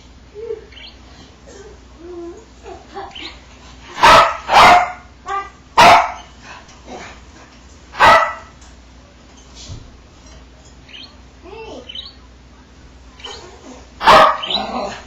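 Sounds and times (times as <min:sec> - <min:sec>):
dog barking: 0:04.0 - 0:06.3, 0:08.0 - 0:08.5, 0:14.0 - 0:15.0.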